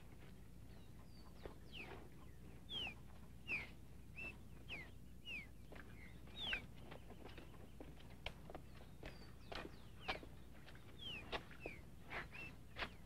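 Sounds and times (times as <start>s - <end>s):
faint low hum: 0.0s - 13.0s
whistled bird calls: 2.7s - 6.6s, 11.0s - 12.6s
soft footsteps on dirt: 5.6s - 13.0s.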